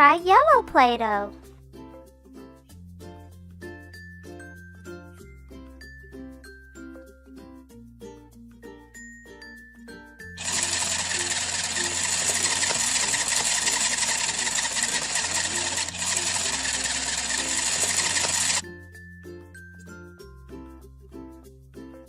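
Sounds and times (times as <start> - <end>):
children's background music: 0.0 - 1.5
toy kitchen appliance whirring: 10.4 - 18.6.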